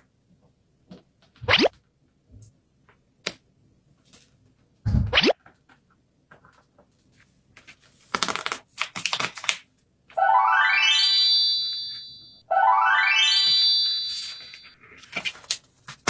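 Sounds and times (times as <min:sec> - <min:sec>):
paper crinkling: 0:06.5 - 0:09.7, 0:14.2 - 0:16.0
magic sparkle chimes: 0:10.2 - 0:14.8.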